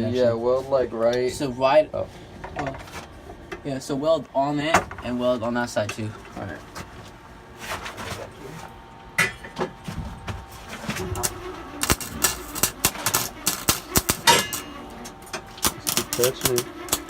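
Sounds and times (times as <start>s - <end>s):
welding arc crackling: 10.8s - 17.0s.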